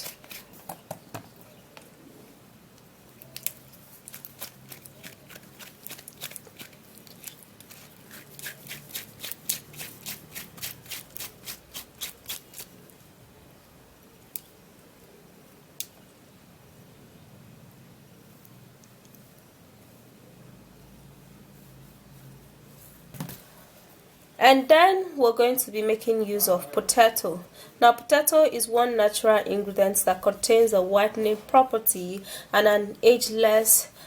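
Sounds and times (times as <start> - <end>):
scraping gel from leaf: 0.0 - 0.8, 3.2 - 13.0.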